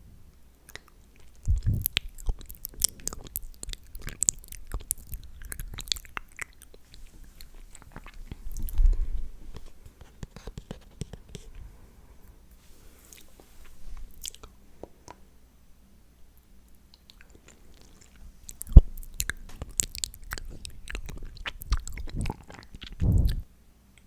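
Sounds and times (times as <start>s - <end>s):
wet mouth clicks and smacks: 0.6s - 9.0s, 16.9s - 23.4s
dull low thump: 23.0s - 23.4s.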